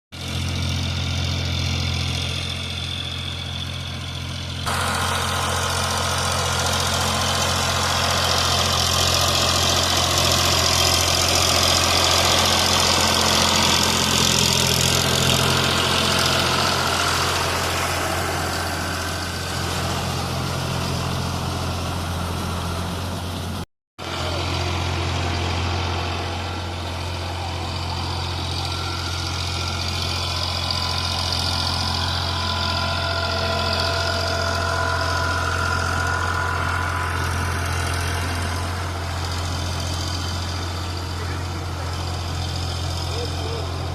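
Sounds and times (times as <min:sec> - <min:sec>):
tractor diesel engine running: 0:00.1 - 0:43.9
rotavator churning soil: 0:04.7 - 0:43.9.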